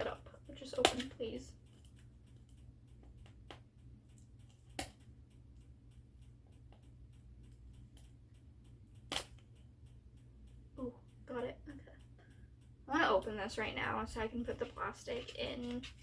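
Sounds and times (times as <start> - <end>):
sharp plastic clicks: 0.0 - 11.2.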